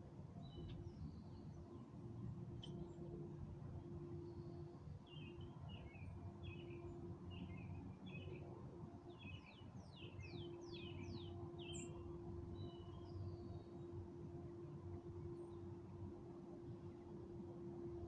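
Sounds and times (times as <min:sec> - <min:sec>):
songbird singing: 0:09.2 - 0:13.8.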